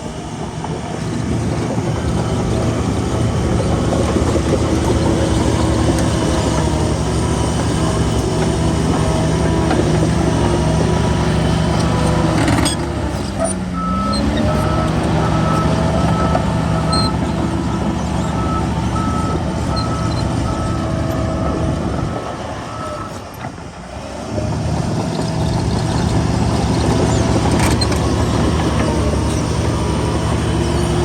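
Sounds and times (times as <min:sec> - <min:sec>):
diesel engine running: 0:00.0 - 0:31.0
reversing alarm beeping: 0:13.8 - 0:23.2.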